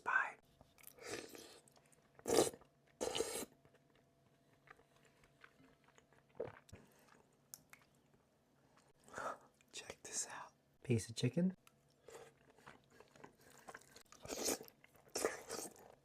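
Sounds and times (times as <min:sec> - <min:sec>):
quiet chewing with mouth clicks: 0:00.5 - 0:09.8, 0:11.6 - 0:16.0
loud noodle mouthfuls: 0:02.2 - 0:03.6, 0:14.2 - 0:15.8.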